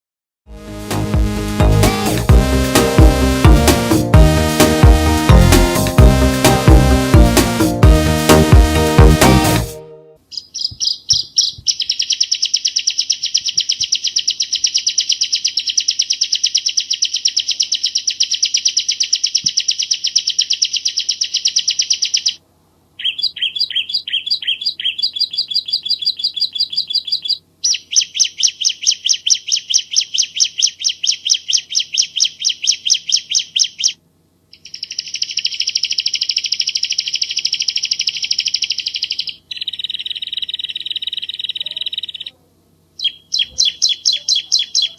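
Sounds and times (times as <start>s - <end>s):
bird singing rapid high notes: 10.3s - 22.4s, 23.0s - 42.4s, 43.0s - 44.9s.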